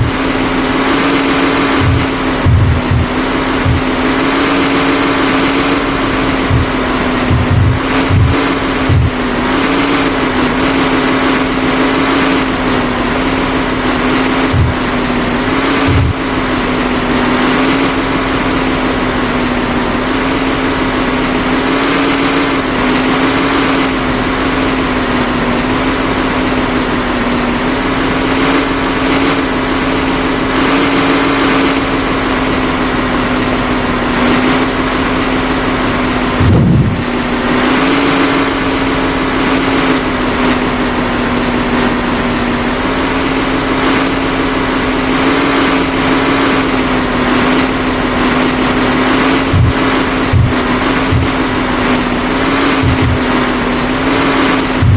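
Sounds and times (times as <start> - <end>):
dull low thumps: 0.0 - 9.7, 14.2 - 16.6, 35.8 - 37.5, 49.4 - 51.8, 52.5 - 53.5
engine running steadily: 0.0 - 54.9.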